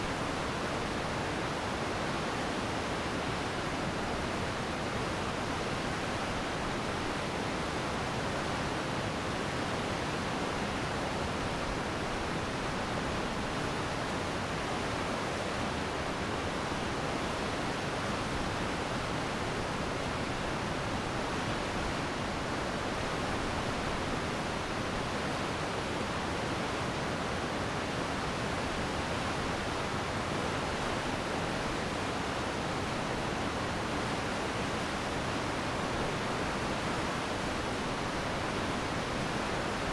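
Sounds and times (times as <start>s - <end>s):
stream water rushing: 8.6s - 39.9s.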